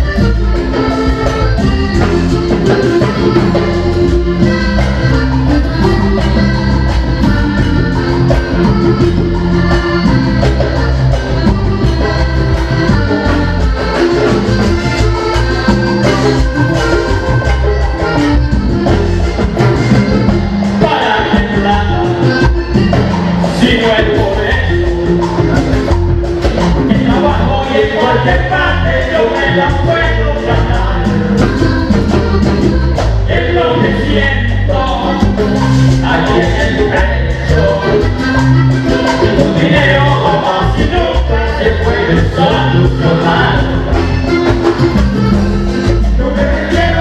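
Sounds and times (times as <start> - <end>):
accordion melody: 0.0 - 47.0
band playing live: 0.0 - 47.0
bass: 0.0 - 47.0
hand percussion: 0.0 - 47.0
person singing: 26.6 - 32.3, 33.2 - 44.3, 46.1 - 47.0.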